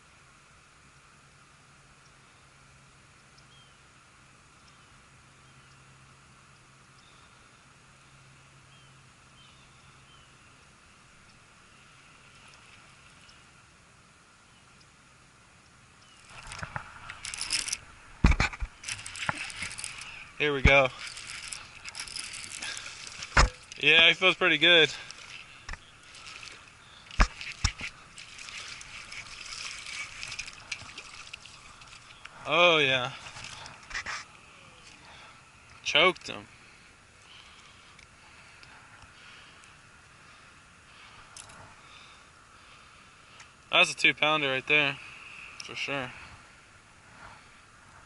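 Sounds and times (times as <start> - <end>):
low hum: 0.0 - 43.6
steady hiss: 0.0 - 48.0
water splashing and sloshing: 10.8 - 13.8, 16.2 - 42.8.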